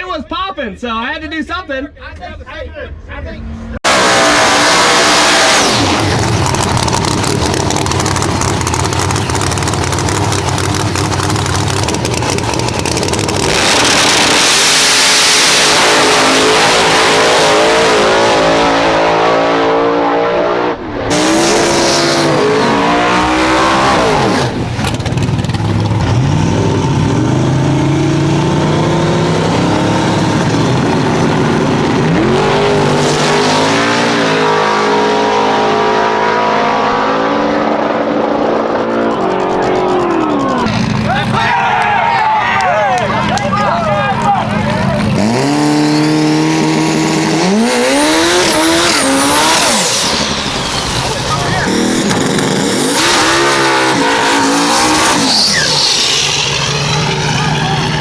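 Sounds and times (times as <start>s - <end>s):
racing car engines revving: 3.4s - 58.0s.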